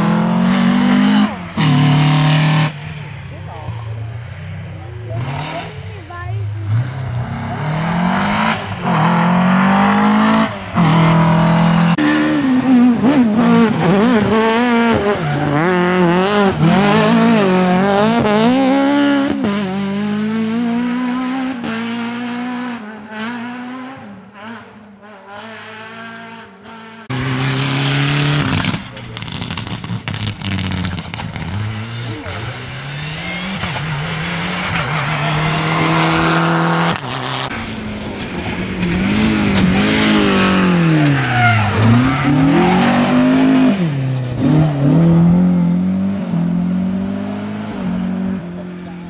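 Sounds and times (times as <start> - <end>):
rally car engines revving: 0.0 - 49.0
tyre squeal: 40.9 - 43.3.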